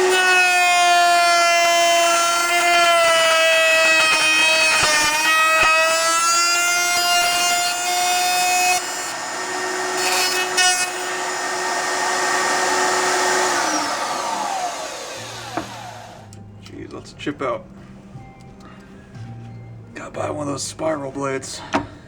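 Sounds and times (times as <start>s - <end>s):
router whining through wood: 0.0s - 16.4s.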